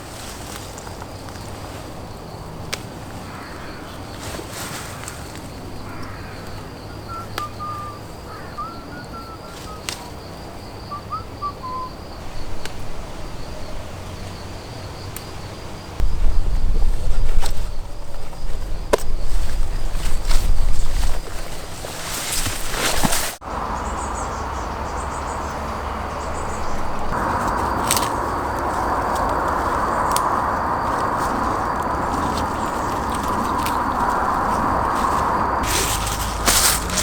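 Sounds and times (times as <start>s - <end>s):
high insect hum: 0.0s - 37.0s
bird chirping: 5.8s - 12.6s, 23.5s - 37.0s
low rumble: 23.5s - 37.0s.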